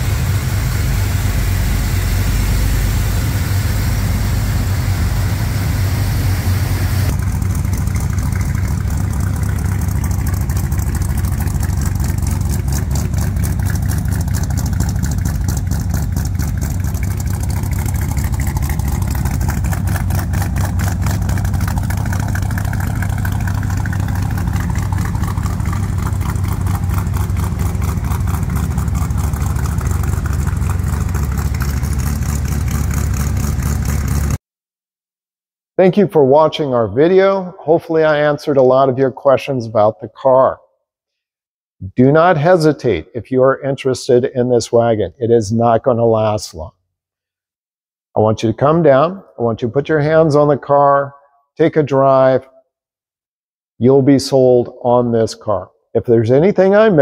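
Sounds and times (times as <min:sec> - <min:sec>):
car engine idling: 0:00.0 - 0:34.4.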